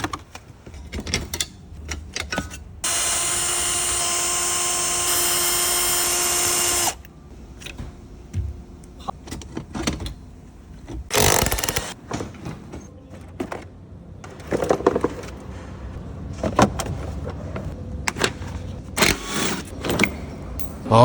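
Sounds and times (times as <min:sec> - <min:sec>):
car parts being handled: 0:09.1 - 0:20.8.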